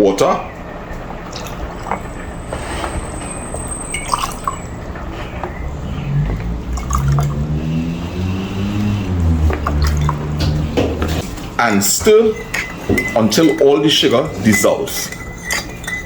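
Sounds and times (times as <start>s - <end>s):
water pouring into a container: 3.8s - 4.7s, 6.7s - 7.4s, 9.2s - 10.5s
low wavering pitched sound: 5.6s - 11.2s.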